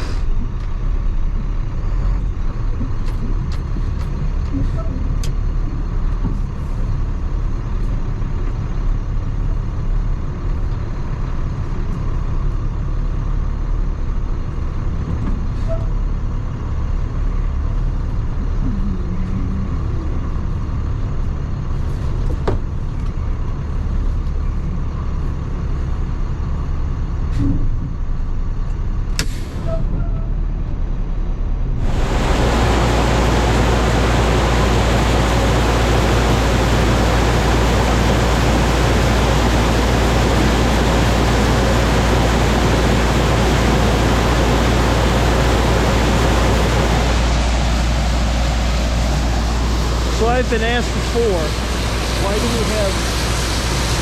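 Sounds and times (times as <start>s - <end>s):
truck engine rumbling: 0.0s - 54.0s
steady rushing noise: 31.7s - 54.0s.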